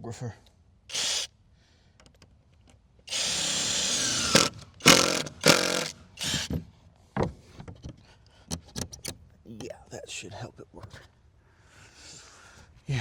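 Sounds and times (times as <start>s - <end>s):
power drill driving screws: 0.9s - 1.3s, 3.1s - 6.6s.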